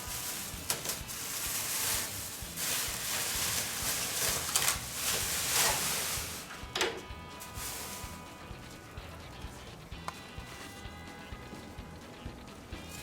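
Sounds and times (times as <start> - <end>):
plastic sheeting rustling: 0.0 - 9.6.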